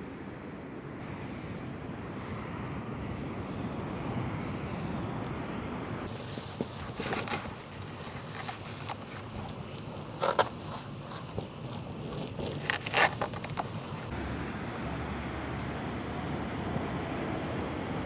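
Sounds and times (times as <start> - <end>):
outdoor rumble with wind: 0.0 - 18.0
things being handled: 6.1 - 14.1.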